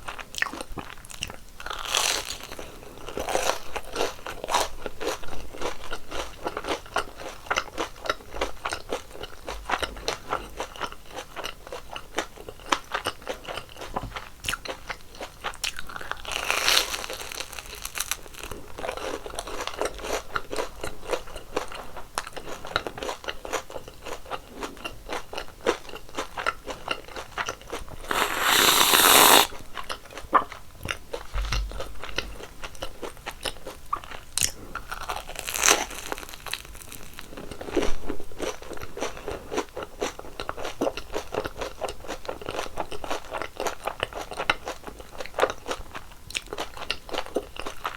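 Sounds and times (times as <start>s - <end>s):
crunching and chewing fried dough: 0.0s - 47.9s.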